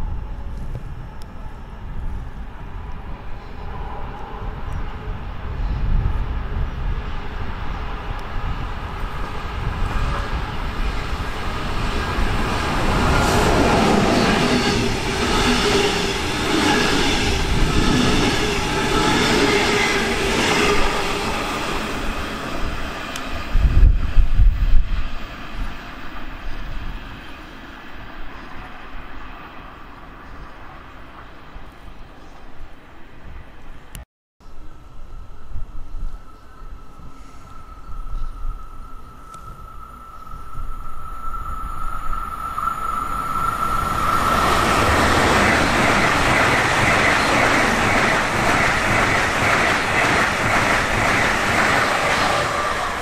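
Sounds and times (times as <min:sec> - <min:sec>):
train rolling noise: 0:00.0 - 0:31.6, 0:35.0 - 0:53.0
steady high tone: 0:35.0 - 0:53.0.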